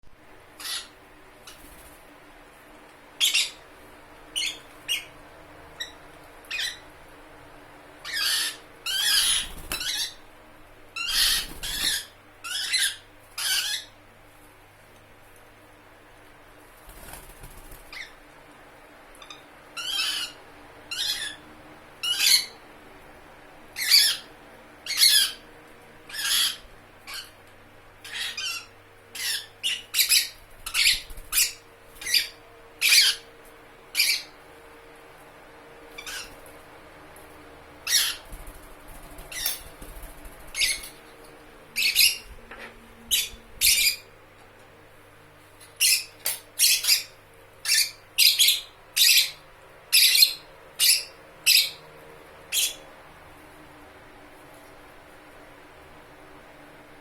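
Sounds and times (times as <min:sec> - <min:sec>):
bird shrill squawks: 0:00.6 - 0:01.0, 0:08.1 - 0:10.2, 0:11.0 - 0:13.9.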